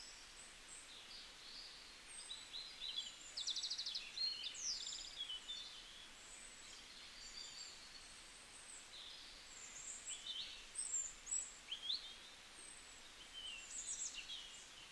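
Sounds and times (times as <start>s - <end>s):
faint steady hiss: 0.0s - 14.9s
small birds chirping: 0.0s - 14.9s.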